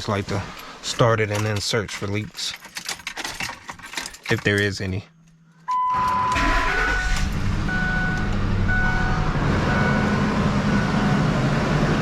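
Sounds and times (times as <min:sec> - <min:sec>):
dashboard warning chime beeping: 0:05.7 - 0:11.5
car engine idling: 0:06.4 - 0:12.0.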